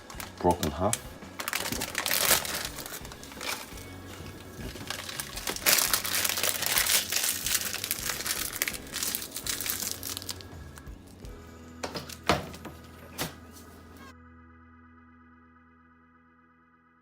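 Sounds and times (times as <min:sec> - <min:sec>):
dry noodles crunching: 0:00.0 - 0:10.9.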